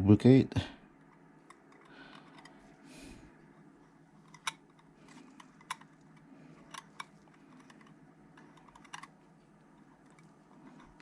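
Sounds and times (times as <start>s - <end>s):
small parts and tools clicking: 1.1s - 2.6s, 4.2s - 9.2s, 9.8s - 11.0s.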